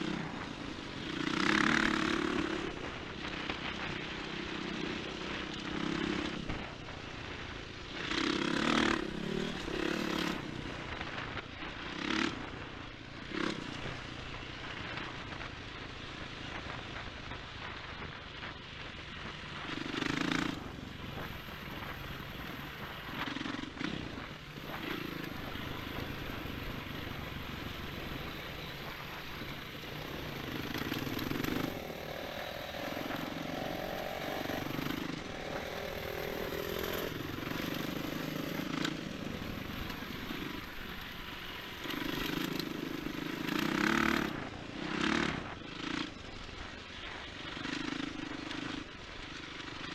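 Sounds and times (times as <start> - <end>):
motorcycle engine revving: 0.0 - 49.9
steady rushing noise: 0.0 - 49.9.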